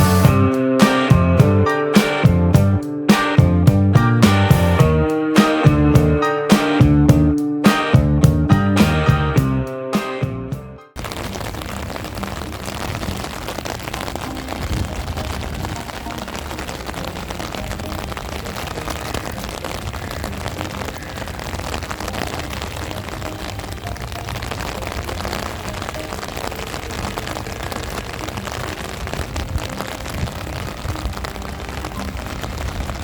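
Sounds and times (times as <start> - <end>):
heavy rain falling: 0.0 - 9.7, 11.0 - 33.0
wind rumbling on microphone: 11.0 - 33.0.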